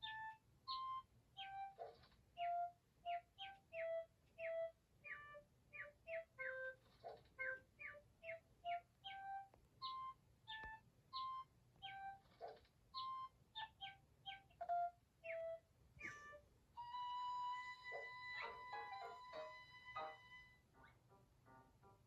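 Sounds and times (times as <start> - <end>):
cartoon bird tweets: 0.0 - 16.4.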